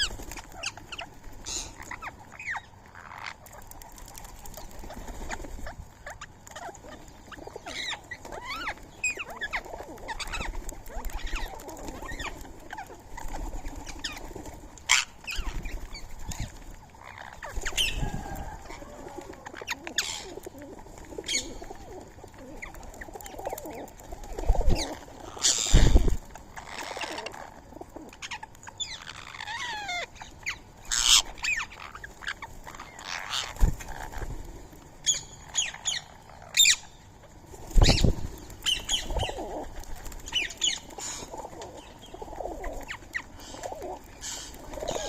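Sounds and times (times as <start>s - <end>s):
pigeons and doves cooing: 0.0s - 45.0s
parakeet high calls: 28.2s - 34.2s.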